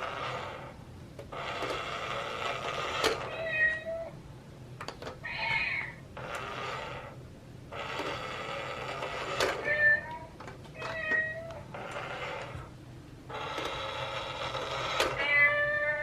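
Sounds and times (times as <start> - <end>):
cat meowing: 3.3 - 4.2, 5.2 - 6.0, 9.6 - 11.7, 15.1 - 16.0.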